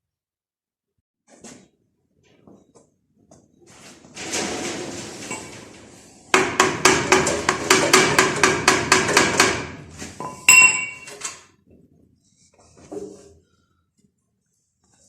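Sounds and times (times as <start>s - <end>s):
ringing metal clank: 10.2s - 11.2s.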